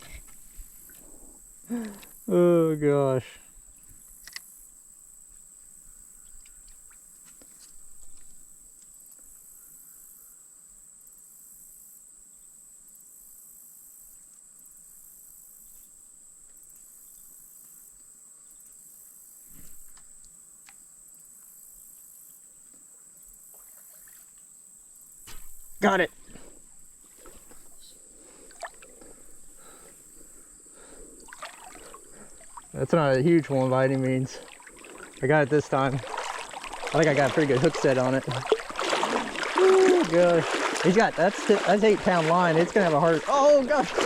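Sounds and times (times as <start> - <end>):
high-pitched insect chorus: 0.0 - 20.2, 20.8 - 44.0.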